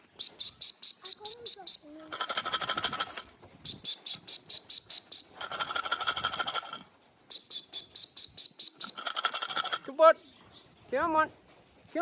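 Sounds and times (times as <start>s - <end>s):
tin of feed rattling: 2.0s - 3.4s, 4.6s - 6.9s, 8.6s - 10.0s.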